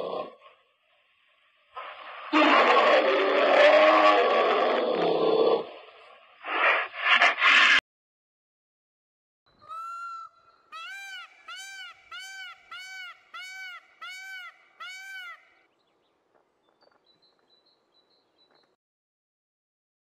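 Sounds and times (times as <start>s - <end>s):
animal calls rising and falling: 2.3s - 5.6s, 9.6s - 15.6s.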